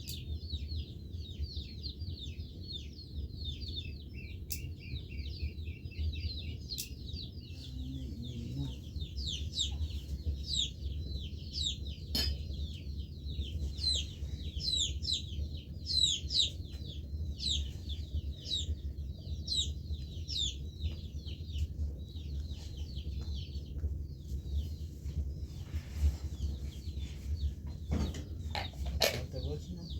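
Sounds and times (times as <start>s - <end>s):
chorus of bird chirps: 0.0s - 29.9s
sharp click: 6.7s - 7.0s.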